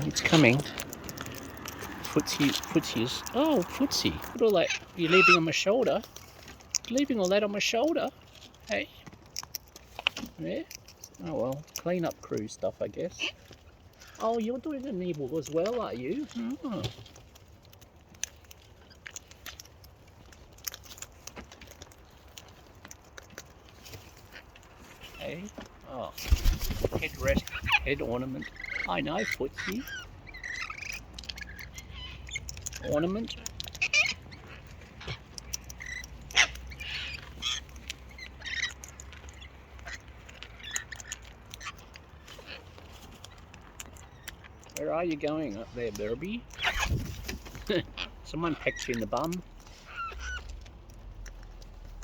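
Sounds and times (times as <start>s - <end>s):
cockatoos squawking and chirping: 0.0s - 11.2s, 26.2s - 52.0s
bird beak crunching food: 0.0s - 52.0s.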